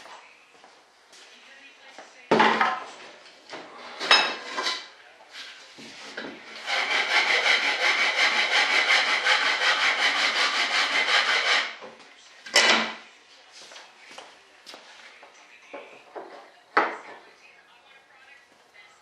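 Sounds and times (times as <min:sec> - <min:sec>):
wood sanding or sawing strokes: 0:06.5 - 0:11.8.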